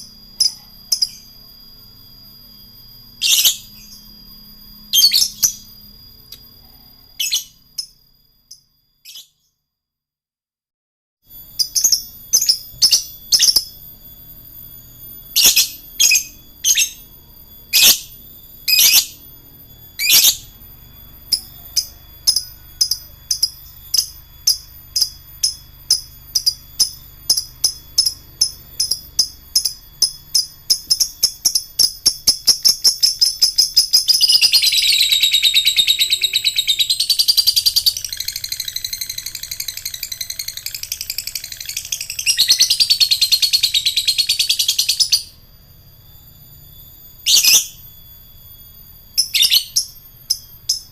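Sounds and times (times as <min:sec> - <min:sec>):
lovebird chirping and trilling: 0:00.4 - 0:01.4, 0:03.2 - 0:04.1, 0:04.9 - 0:05.8, 0:07.0 - 0:09.5, 0:11.4 - 0:17.1, 0:17.7 - 0:19.3, 0:20.0 - 0:20.6, 0:21.2 - 0:45.4, 0:47.1 - 0:47.9, 0:49.2 - 0:50.9.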